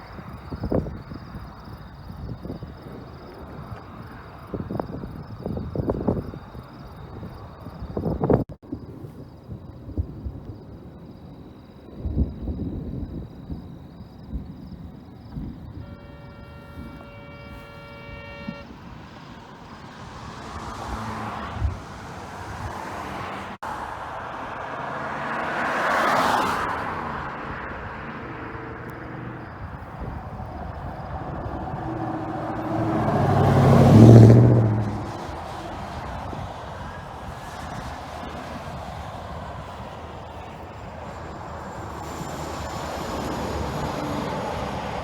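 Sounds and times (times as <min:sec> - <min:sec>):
vehicles passing on highway: 0:00.0 - 0:45.0
steady horn-like tone: 0:15.7 - 0:18.9
low engine note: 0:28.6 - 0:36.3.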